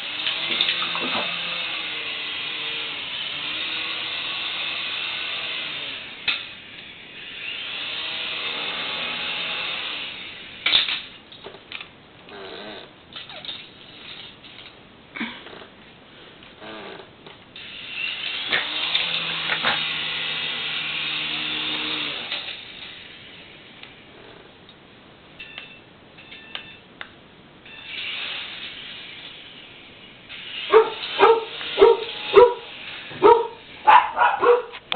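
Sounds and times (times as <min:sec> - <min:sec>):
high whirring hiss: 0:27.7 - 0:34.9
chihuahua barking: 0:30.7 - 0:34.8.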